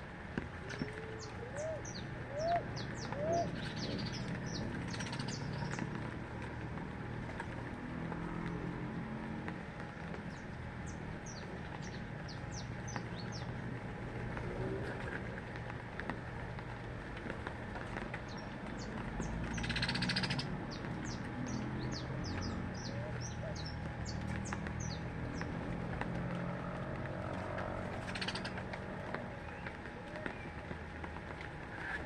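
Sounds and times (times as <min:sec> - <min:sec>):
low background noise: 0:00.0 - 0:32.0
small birds chirping: 0:00.7 - 0:06.1, 0:10.3 - 0:13.6, 0:18.2 - 0:25.6, 0:28.0 - 0:28.7.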